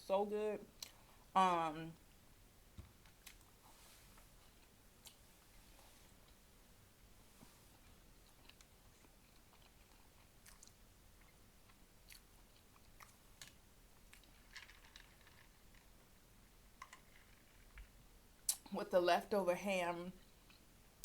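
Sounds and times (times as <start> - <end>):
person chewing food: 3.0 - 5.3, 7.7 - 15.7, 20.2 - 20.7.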